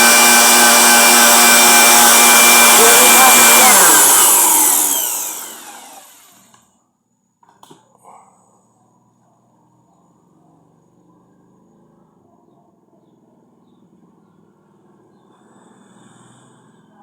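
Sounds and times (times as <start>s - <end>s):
electric fan running and spinning down: 0.0s - 6.6s.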